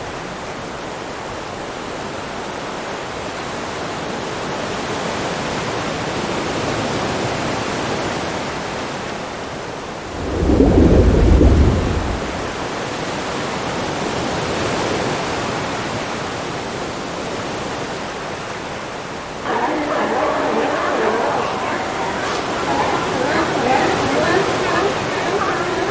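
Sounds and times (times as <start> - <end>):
rushing underwater ambience: 10.0 - 12.8, 19.0 - 25.9
deep rumble: 10.1 - 12.6.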